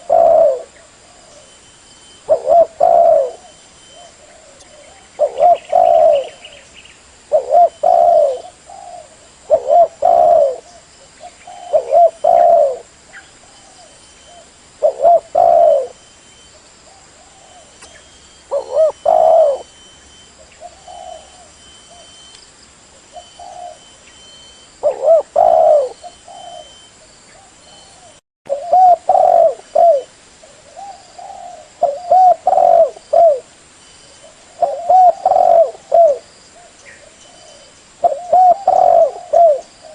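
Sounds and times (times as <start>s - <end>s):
dove cooing: 0.0s - 1.5s, 2.2s - 6.6s, 7.3s - 22.3s, 23.0s - 33.5s, 34.2s - 39.9s.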